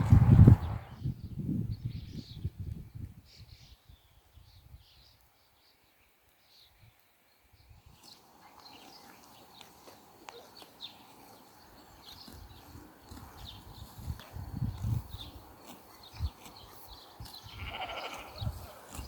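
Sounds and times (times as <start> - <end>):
small birds chirping: 0.4 - 19.0.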